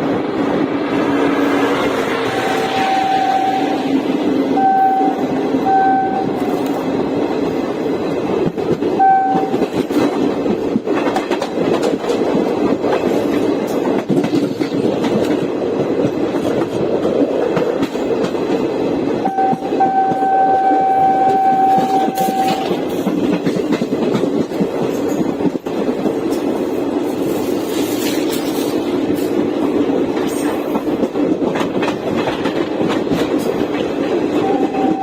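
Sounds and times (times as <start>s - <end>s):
train wheels clattering: 0.0s - 35.0s
train horn blasts: 2.2s - 6.7s, 9.0s - 9.7s, 19.2s - 22.8s, 34.4s - 35.0s.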